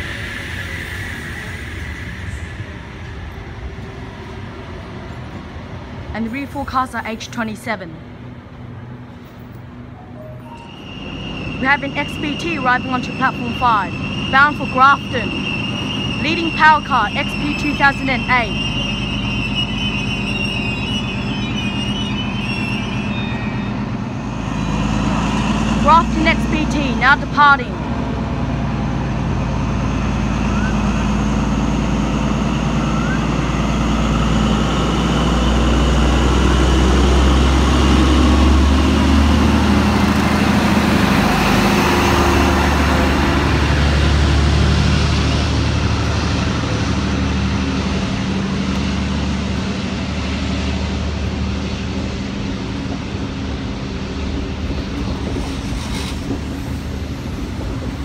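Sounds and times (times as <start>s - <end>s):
diesel engine hum: 0.0s - 58.0s
train carriages rolling on rails: 0.0s - 58.0s.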